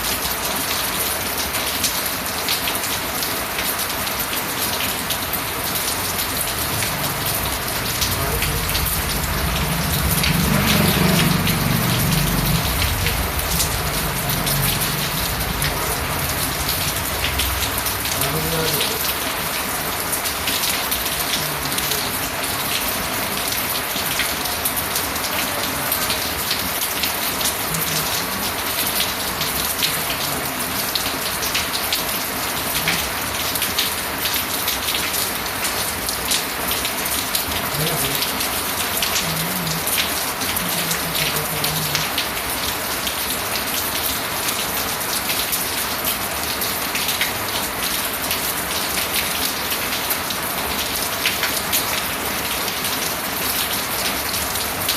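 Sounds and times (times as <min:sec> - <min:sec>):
steady rain patter: 0:00.0 - 0:54.9.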